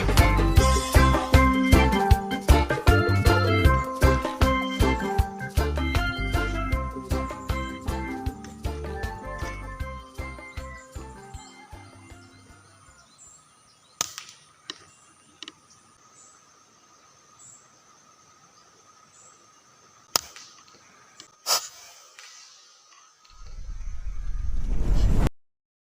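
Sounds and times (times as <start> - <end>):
sharp cracks: 14.0 - 15.6, 20.0 - 23.4.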